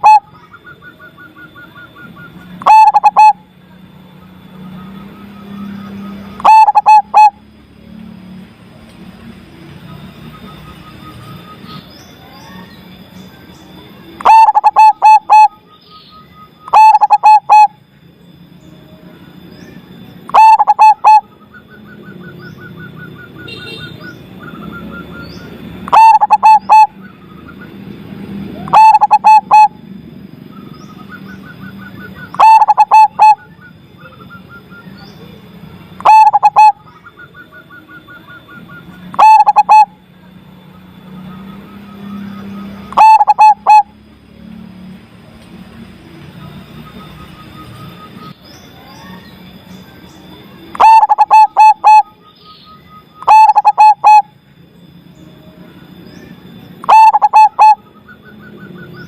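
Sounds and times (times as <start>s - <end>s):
dove cooing: 0.0s - 0.9s, 2.6s - 3.4s, 5.9s - 7.4s, 14.2s - 15.6s, 16.7s - 17.8s, 20.3s - 21.3s, 24.4s - 27.1s, 28.5s - 29.8s, 32.0s - 34.2s, 36.0s - 40.0s, 42.8s - 44.0s, 50.7s - 52.2s, 53.2s - 54.3s, 56.8s - 57.9s
soft fast bird trill: 18.5s - 40.0s, 40.6s - 44.0s, 46.5s - 59.0s.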